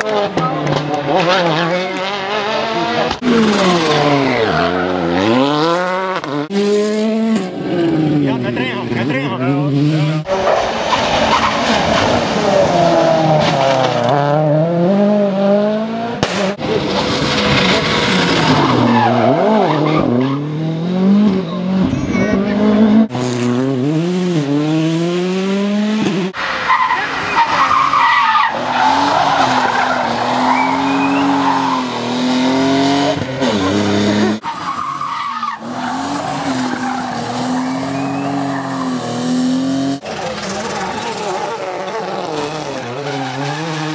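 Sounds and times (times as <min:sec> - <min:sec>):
rally car engines revving: 0:00.0 - 0:43.9
tyre squeal: 0:26.7 - 0:32.0, 0:34.4 - 0:39.2.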